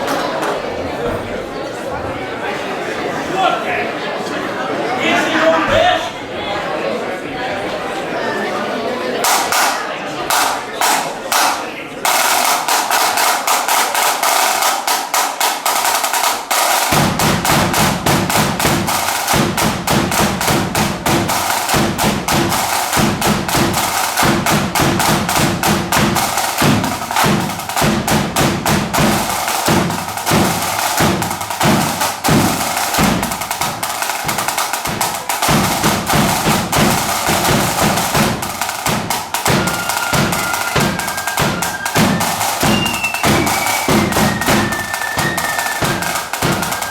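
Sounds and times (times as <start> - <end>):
snare drum rolls: 9.2 - 46.9
bass drum pounding: 16.9 - 46.7.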